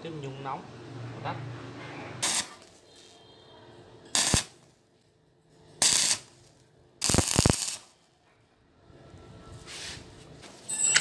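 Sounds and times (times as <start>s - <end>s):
arc welder crackling and hissing: 2.2s - 3.3s, 4.1s - 4.8s, 5.8s - 8.0s.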